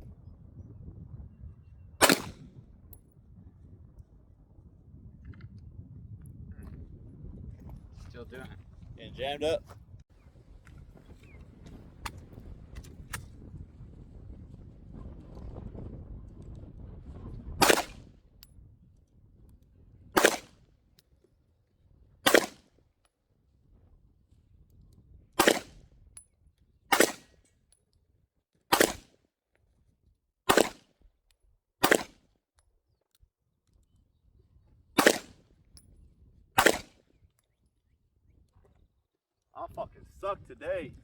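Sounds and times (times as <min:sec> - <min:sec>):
single gunshots: 0:02.0 - 0:02.5, 0:17.6 - 0:18.0, 0:20.2 - 0:20.5, 0:22.3 - 0:22.6, 0:25.4 - 0:25.8, 0:26.9 - 0:27.3, 0:28.7 - 0:29.1, 0:30.5 - 0:30.8, 0:31.8 - 0:32.2, 0:35.0 - 0:35.4, 0:36.6 - 0:37.0.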